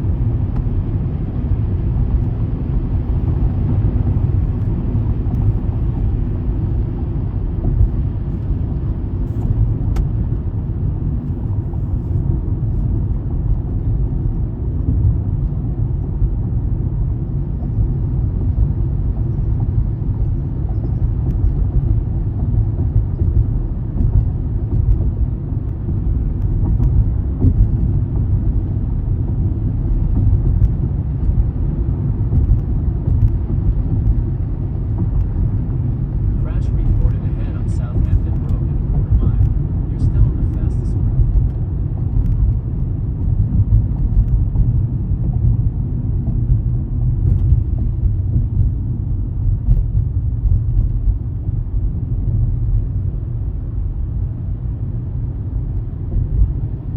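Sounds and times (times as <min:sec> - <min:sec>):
car road and engine rumble: 0:00.0 - 0:56.9.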